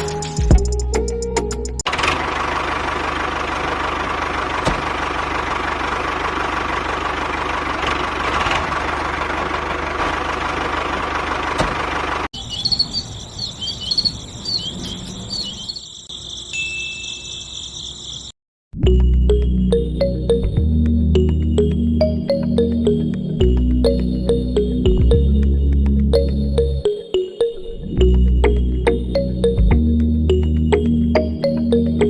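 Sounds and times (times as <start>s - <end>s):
high chirps: 12.4s - 18.4s.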